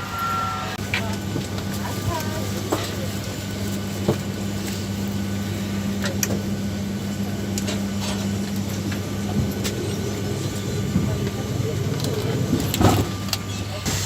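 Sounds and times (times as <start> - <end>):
airplane cabin hum: 0.0 - 14.0.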